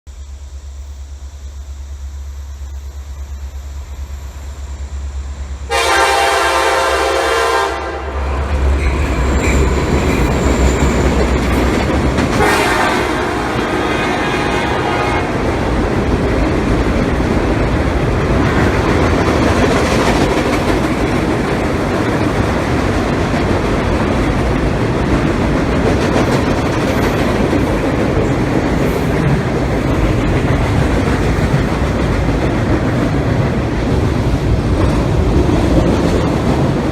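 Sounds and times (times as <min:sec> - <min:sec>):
diesel locomotive rumble: 0:00.1 - 0:36.9
train horn blast: 0:05.6 - 0:09.7, 0:12.3 - 0:15.6
freight cars rumbling and clattering: 0:08.2 - 0:36.9.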